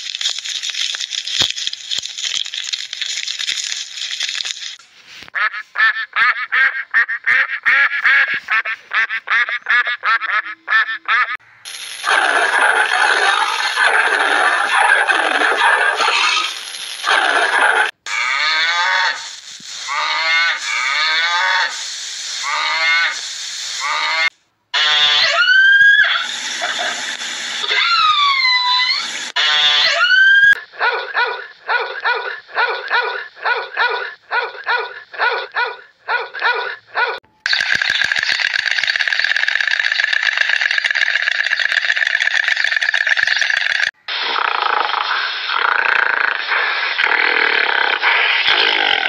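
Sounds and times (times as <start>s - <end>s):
harsh chorus of calls: 12.0s - 23.2s
calls falling in pitch: 23.8s - 26.3s, 27.6s - 30.6s.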